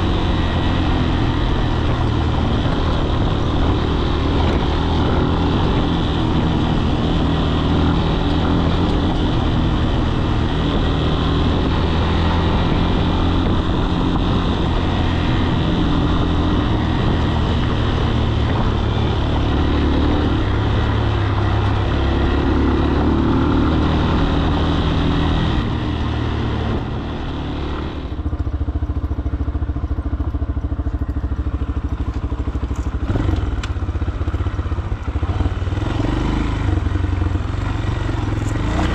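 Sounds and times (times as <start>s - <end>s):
wind rushing over microphone: 0.0s - 30.6s
motorcycle engine running: 0.0s - 38.9s.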